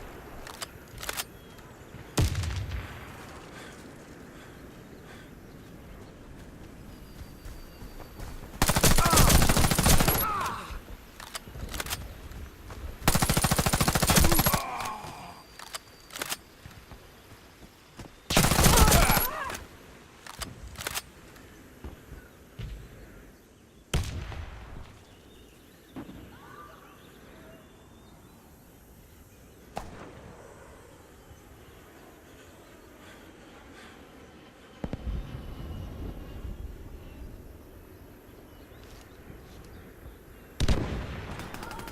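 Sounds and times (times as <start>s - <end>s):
rapid automatic gunfire: 8.6s - 10.4s, 13.0s - 14.6s, 18.3s - 19.3s.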